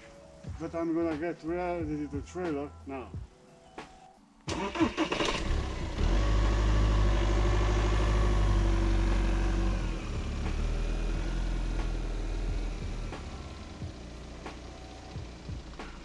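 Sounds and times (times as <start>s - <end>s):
car engine starting and running: 4.5s - 16.0s.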